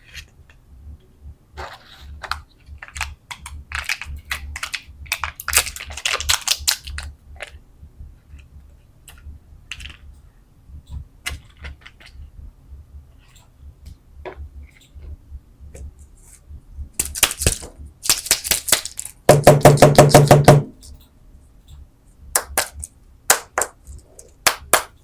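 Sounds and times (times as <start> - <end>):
candy wrapper crackling: 2.3 - 7.6, 17.0 - 19.3.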